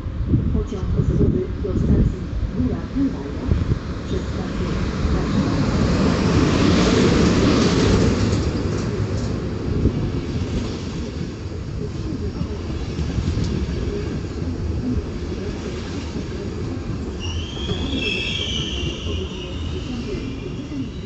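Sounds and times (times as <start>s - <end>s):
train rumbling along track: 0.0s - 21.0s.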